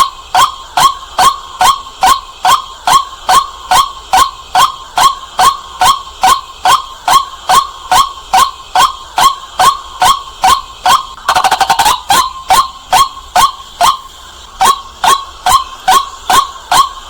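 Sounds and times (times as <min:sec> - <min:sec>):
waterhen calling: 0:00.4 - 0:17.0.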